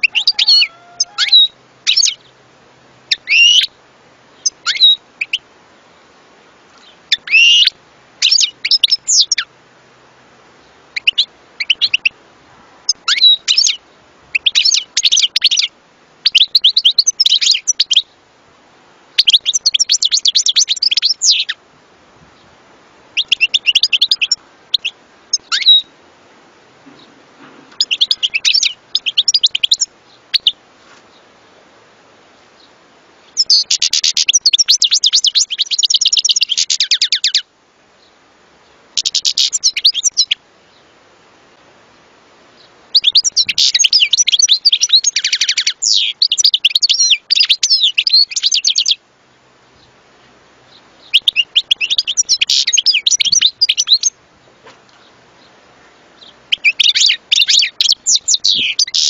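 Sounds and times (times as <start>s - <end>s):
bird twittering and trilling: 0.0s - 2.4s, 3.1s - 3.7s, 4.4s - 5.4s, 6.8s - 9.5s, 11.0s - 12.2s, 12.9s - 18.1s, 19.2s - 21.6s, 23.2s - 25.9s, 26.9s - 31.2s, 32.6s - 38.1s, 39.0s - 40.9s, 42.6s - 49.0s, 50.7s - 54.2s, 54.9s - 59.0s.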